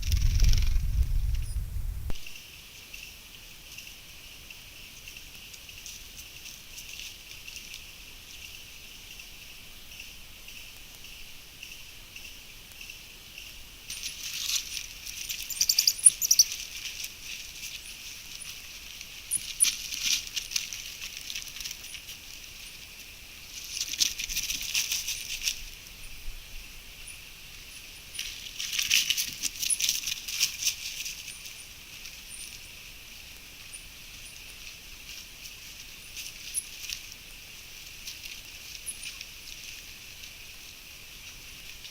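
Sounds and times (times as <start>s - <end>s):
crackling rustle: 0.0s - 41.9s
steady high hiss: 0.0s - 41.9s
faint high chirps: 15.2s - 16.6s.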